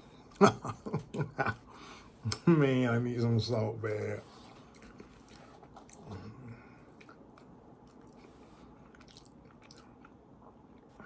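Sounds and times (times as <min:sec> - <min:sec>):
person chewing food: 0:04.5 - 0:11.0.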